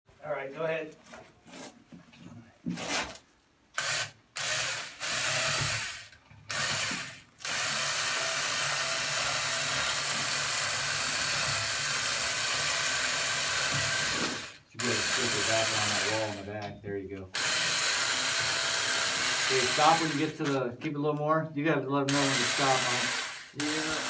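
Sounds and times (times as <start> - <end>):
power tool running: 3.8 - 16.5, 17.4 - 20.6, 22.1 - 24.0.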